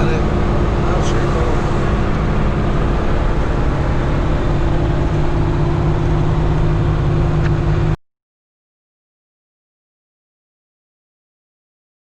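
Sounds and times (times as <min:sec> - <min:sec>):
road noise: 0:00.0 - 0:08.0
vehicle engine hum: 0:00.0 - 0:08.0.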